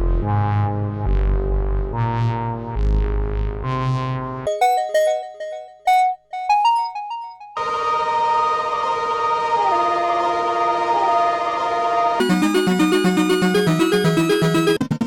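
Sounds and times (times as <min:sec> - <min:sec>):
bright bell-like electronic notes: 0:04.5 - 0:07.6, 0:12.2 - 0:15.0
electronic held chords over bass: 0:12.2 - 0:15.0.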